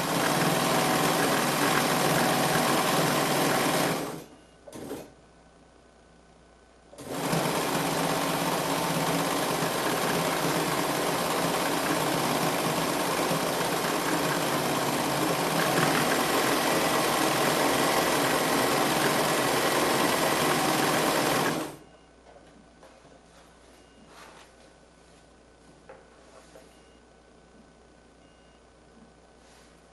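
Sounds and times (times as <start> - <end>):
sewing machine running: 0.0 - 5.1, 7.0 - 21.8.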